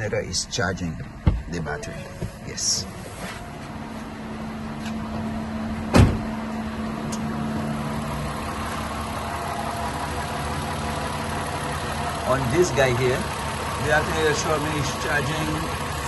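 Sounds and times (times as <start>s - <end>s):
car engine idling: 0.0s - 16.0s
sharp thump: 5.9s - 6.3s.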